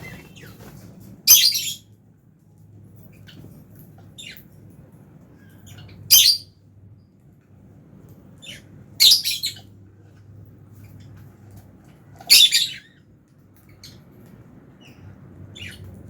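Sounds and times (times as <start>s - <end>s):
soft bird chirps: 3.0s - 4.6s, 8.4s - 9.8s, 12.2s - 16.0s
lovebirds squawking: 8.4s - 9.7s, 12.2s - 13.0s.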